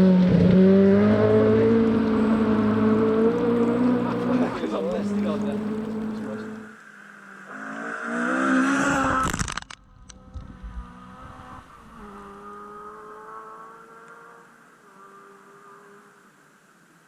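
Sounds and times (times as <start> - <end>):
rally car engine accelerating: 0.0 - 16.2
sharp clicks: 9.2 - 10.2.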